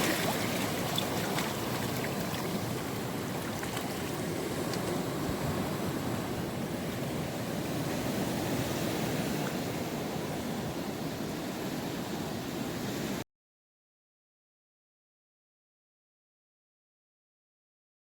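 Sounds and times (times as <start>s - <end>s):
ocean surf rushing: 0.0s - 13.2s
wind: 0.0s - 13.3s.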